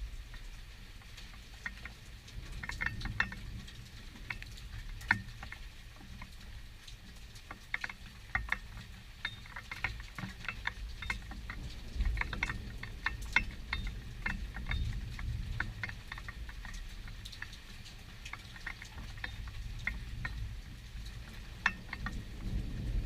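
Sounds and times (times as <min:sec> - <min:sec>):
raindrops pattering and dripping: 0:00.0 - 0:23.0
low thunder rumble: 0:22.0 - 0:23.0.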